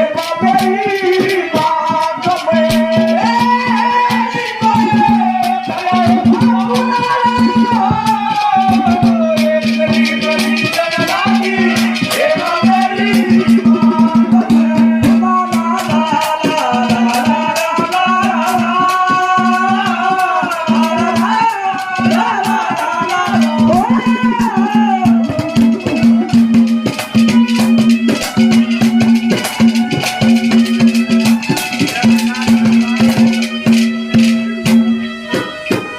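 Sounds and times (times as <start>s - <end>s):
rattling hand percussion and drums: 0.0s - 35.9s
wavering melody line: 3.0s - 15.6s.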